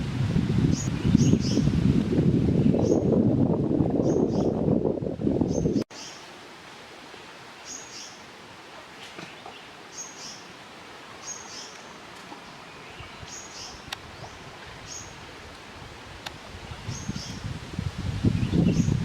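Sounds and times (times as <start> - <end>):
background hiss: 5.9 - 19.0.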